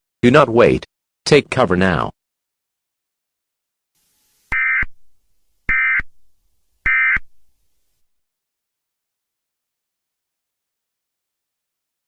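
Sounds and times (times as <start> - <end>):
digital data tone bursts: 4.5 - 5.0, 5.7 - 6.1, 6.8 - 7.3.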